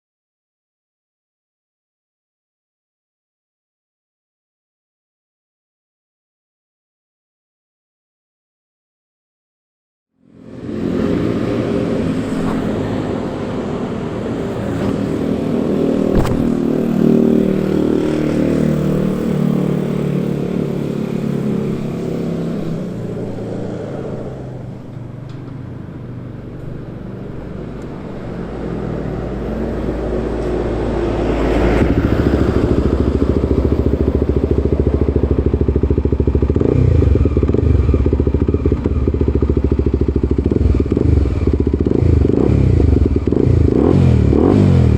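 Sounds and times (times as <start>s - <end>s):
motorcycle engine running: 10.4s - 24.1s, 31.8s - 44.9s.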